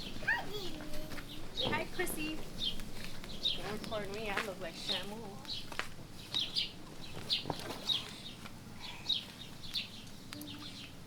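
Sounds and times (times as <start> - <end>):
small bird chirping: 5.4 - 11.0.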